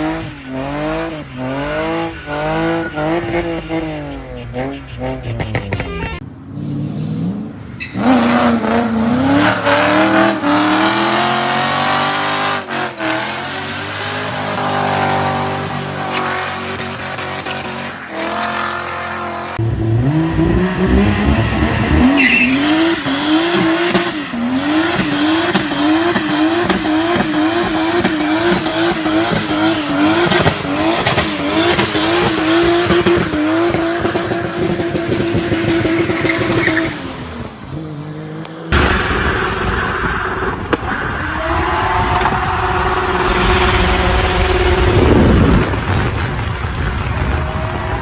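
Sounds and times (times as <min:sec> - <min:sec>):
tyres squealing: 0:00.0 - 0:06.2, 0:20.8 - 0:34.8
car engine revving high: 0:00.0 - 0:48.0.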